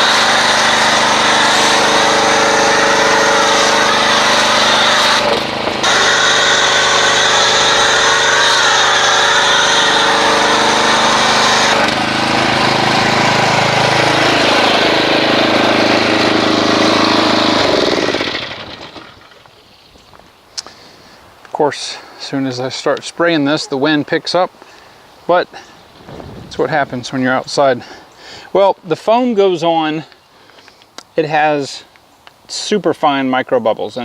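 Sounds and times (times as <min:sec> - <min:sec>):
pressure washer motor hum: 0:00.0 - 0:19.5.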